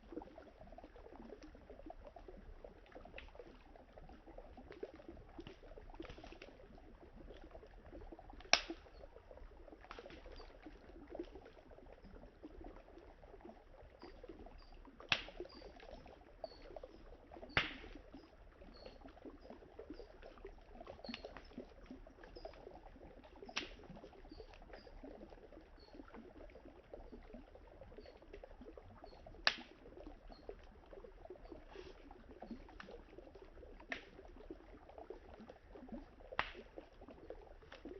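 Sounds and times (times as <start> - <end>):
river trickling: 0.0 - 37.9
wood fire crackling and popping: 8.3 - 8.8, 15.1 - 15.4, 17.6 - 18.0, 23.6 - 23.8, 29.4 - 29.6, 36.4 - 36.7.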